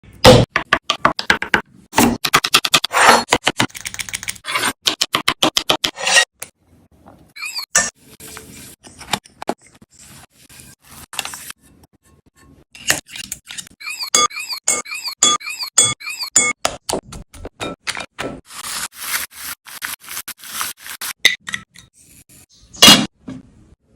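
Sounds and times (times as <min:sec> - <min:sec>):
utensil scraping: 0:18.5 - 0:21.2.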